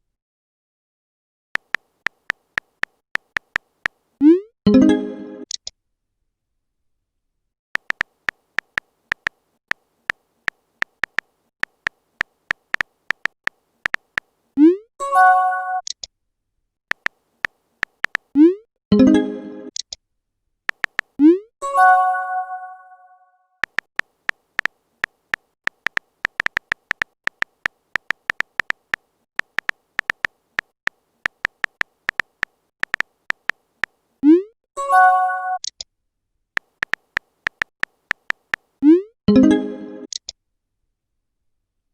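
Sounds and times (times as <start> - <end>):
phone keyboard typing clicks: 1.6 - 4.0, 7.8 - 14.3, 16.9 - 18.3, 20.7 - 21.2, 23.6 - 34.0, 35.6 - 35.9, 36.6 - 38.7.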